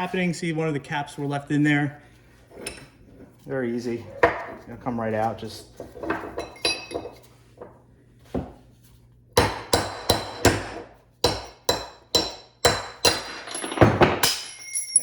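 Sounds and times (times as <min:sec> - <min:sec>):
hammer striking metal: 0:09.4 - 0:15.0.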